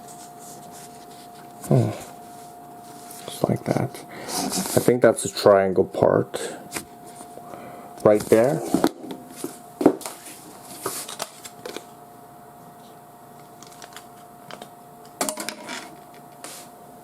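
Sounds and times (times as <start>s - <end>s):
faint steady whine: 0.0s - 17.0s
computer parts clicking and rustling: 13.5s - 16.3s.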